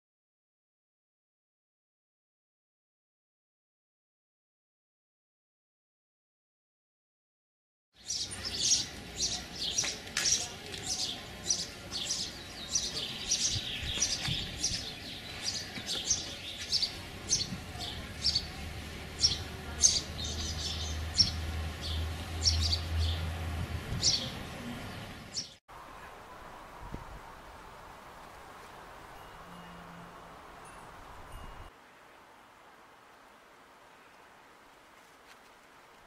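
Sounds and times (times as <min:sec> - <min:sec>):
small birds chirping: 0:08.0 - 0:26.1.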